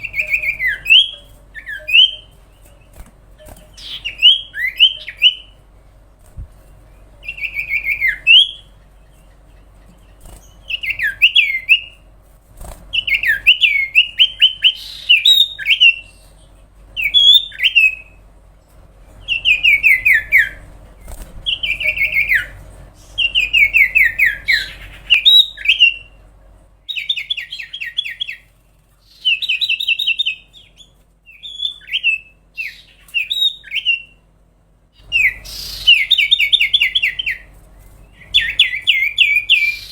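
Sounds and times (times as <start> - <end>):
bird singing whistles: 0.0 - 2.3, 3.8 - 5.5, 7.2 - 8.7, 10.6 - 12.0, 12.9 - 16.2, 17.0 - 18.2, 23.2 - 26.1, 29.1 - 34.2, 35.0 - 37.5, 38.2 - 39.9.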